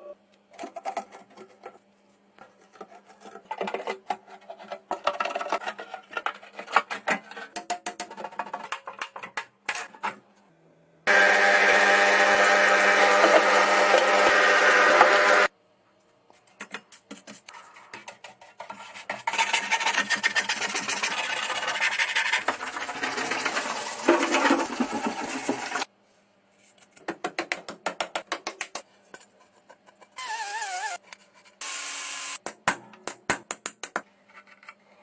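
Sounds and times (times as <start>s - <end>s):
rubbing and scraping on workpiece: 17.0s - 25.9s.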